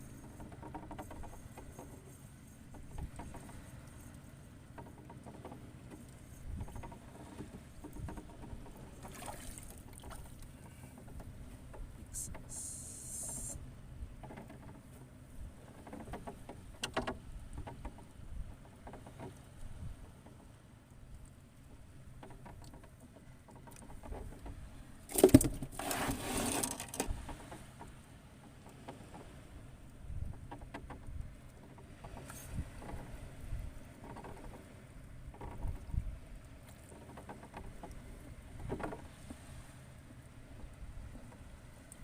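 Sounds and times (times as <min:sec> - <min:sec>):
small knocks: 0:02.7 - 0:03.7, 0:04.7 - 0:12.5, 0:14.2 - 0:19.4
seawater sloshing and splashing: 0:05.2 - 0:11.5, 0:23.6 - 0:27.8
brief hiss: 0:12.1 - 0:13.6.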